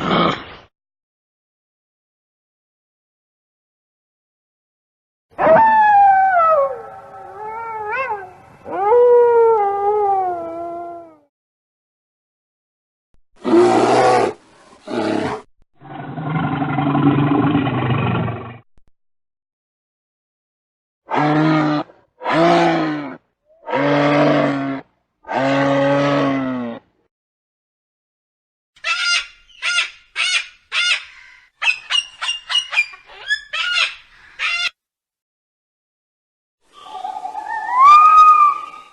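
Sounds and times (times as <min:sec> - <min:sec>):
animal howling: 0:05.4 - 0:11.3, 0:36.9 - 0:38.9.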